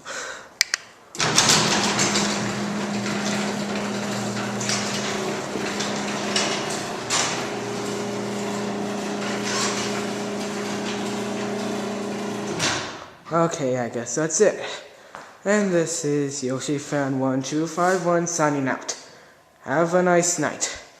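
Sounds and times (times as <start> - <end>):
steel rollers rattling in track: 1.2 - 12.9
garage door opener motor hum: 1.2 - 13.1.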